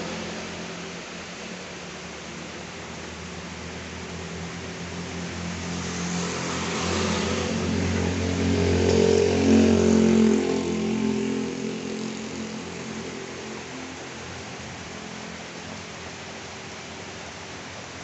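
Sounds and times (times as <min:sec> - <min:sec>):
heavy rain hiss: 0:00.0 - 0:18.0
vehicle engine passing: 0:04.1 - 0:14.2.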